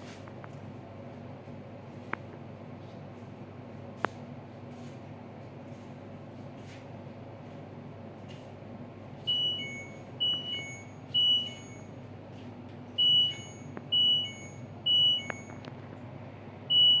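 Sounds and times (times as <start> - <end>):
steady low hum: 0.0 - 17.0
washing machine two-note beeping: 9.2 - 12.1, 12.9 - 15.6, 16.7 - 17.0.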